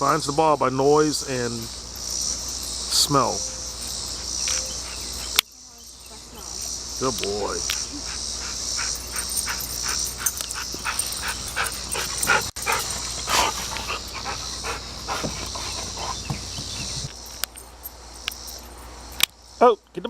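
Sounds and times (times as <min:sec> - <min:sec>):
crickets chirping: 0:00.0 - 0:20.0
dog panting: 0:03.2 - 0:05.4, 0:07.8 - 0:17.1.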